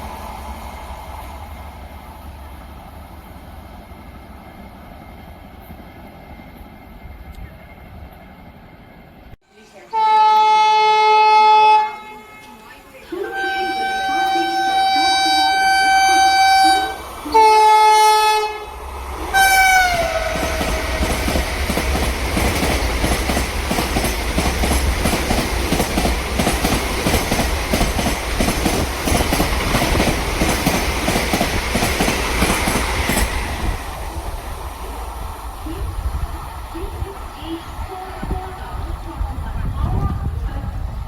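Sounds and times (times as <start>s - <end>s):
train horn blasts: 9.8s - 21.3s
train wheels clacking over rails: 19.1s - 34.2s.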